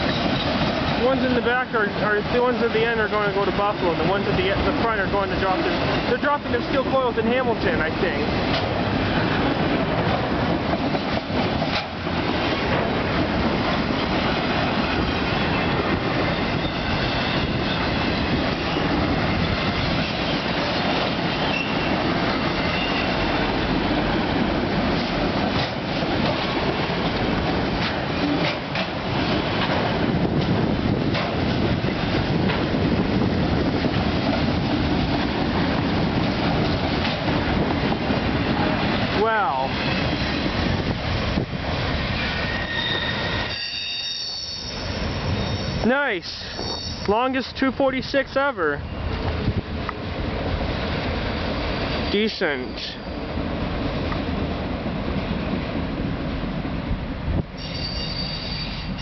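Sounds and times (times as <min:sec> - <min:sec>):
wheels clunking over rail joints: 0:00.0 - 0:43.6
train wheels rumbling on rail: 0:00.0 - 0:59.0.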